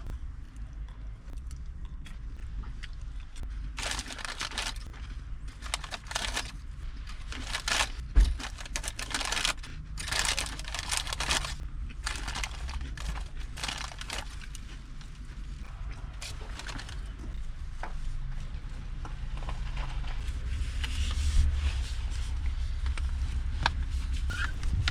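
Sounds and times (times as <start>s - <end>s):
low steady rumble: 0.0s - 24.9s
crinkly rustling: 3.7s - 15.6s, 16.2s - 17.4s.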